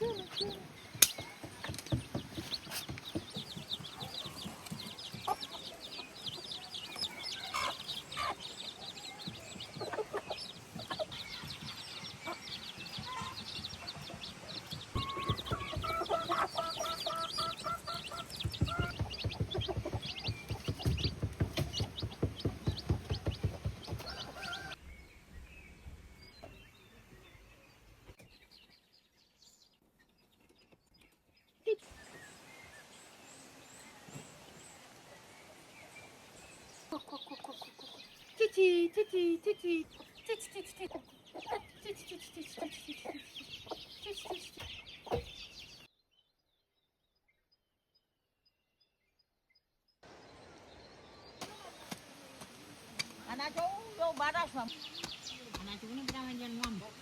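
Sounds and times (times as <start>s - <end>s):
chicks peeping: 0.0s - 24.8s, 35.8s - 45.9s, 51.4s - 57.0s
hens clucking: 0.0s - 24.8s, 36.9s - 38.2s, 39.4s - 45.3s
small birds cheeping: 0.0s - 57.0s.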